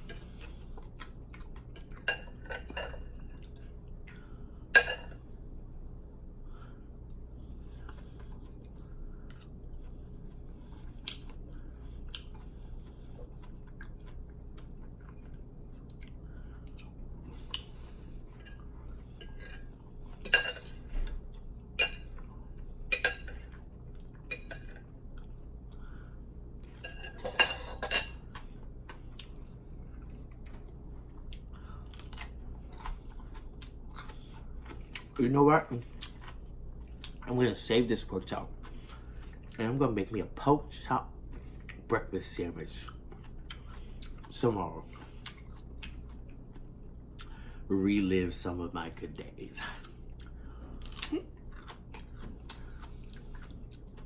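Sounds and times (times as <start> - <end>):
faint low hum: 0.0 - 54.0
chewing: 0.1 - 4.4, 7.0 - 26.0, 28.1 - 37.3, 41.2 - 41.9, 42.7 - 47.4, 49.6 - 54.0
cutlery clinking on a plate: 26.8 - 28.2.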